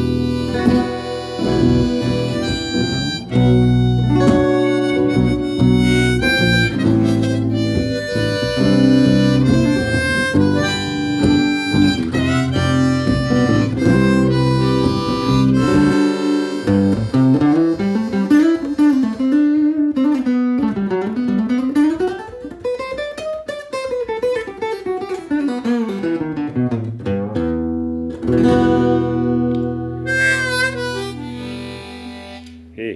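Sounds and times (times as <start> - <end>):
blues harmonica: 0.0 - 26.4, 28.2 - 32.9
acoustic guitar chords: 0.0 - 32.9.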